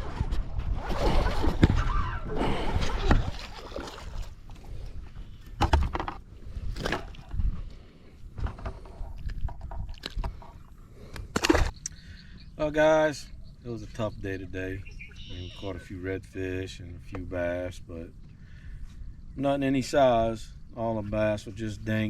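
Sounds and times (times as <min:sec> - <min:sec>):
water sloshing against boat: 0:00.0 - 0:11.8.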